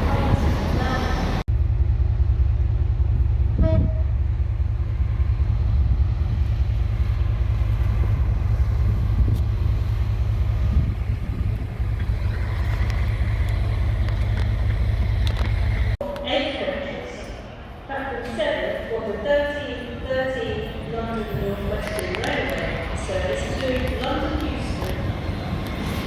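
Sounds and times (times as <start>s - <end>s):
train rumbling: 0.0s - 26.0s
train horn toot: 3.5s - 4.2s.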